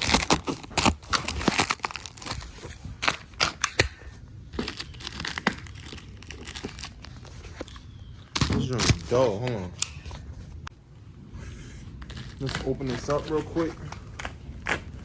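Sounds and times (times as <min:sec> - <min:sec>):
packaging crumpling and crinkling: 0:00.0 - 0:03.6, 0:04.6 - 0:10.3, 0:11.9 - 0:15.0
tape ripping: 0:00.0 - 0:03.9, 0:04.6 - 0:10.1, 0:12.0 - 0:15.0.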